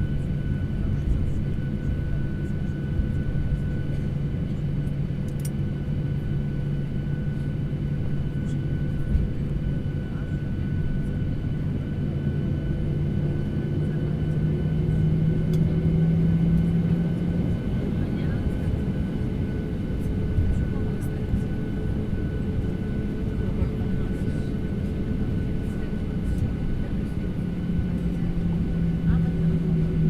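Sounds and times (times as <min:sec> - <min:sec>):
airliner engine drone: 0:00.0 - 0:30.0.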